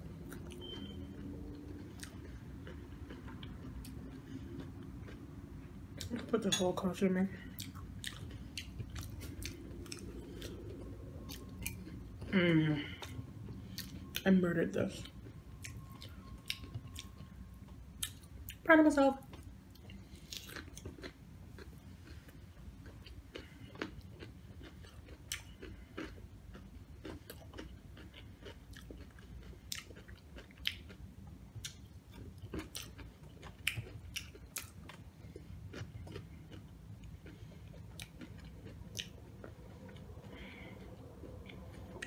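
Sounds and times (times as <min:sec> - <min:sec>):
tortilla chips crunching: 0:19.7 - 0:31.0.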